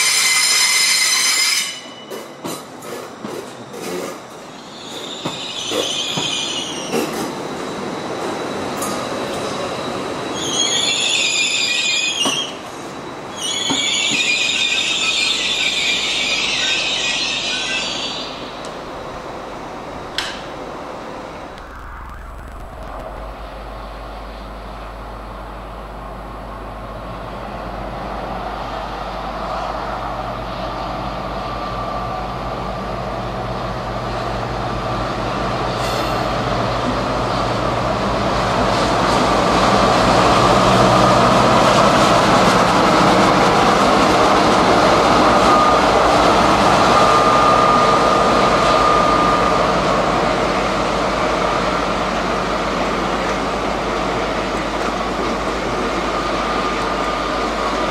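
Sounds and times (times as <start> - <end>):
train moving: 0.0 - 57.9
high wheel squeals: 3.7 - 18.6.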